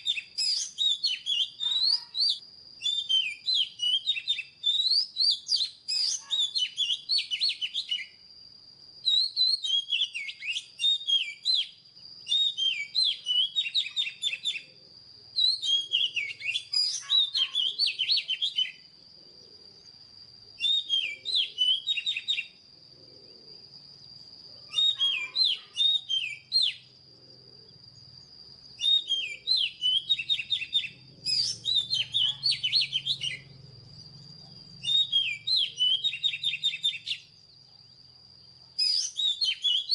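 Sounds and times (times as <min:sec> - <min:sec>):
bird whistles and chirps: 0:00.0 - 0:08.2, 0:09.0 - 0:14.7, 0:15.4 - 0:18.9, 0:20.6 - 0:22.6, 0:24.6 - 0:26.9, 0:28.8 - 0:33.5, 0:34.6 - 0:37.4, 0:38.8 - 0:39.9.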